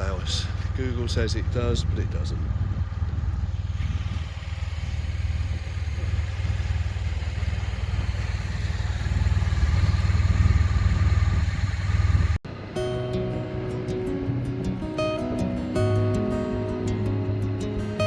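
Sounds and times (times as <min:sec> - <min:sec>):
motorcycle engine rumbling: 0:00.0 - 0:12.9.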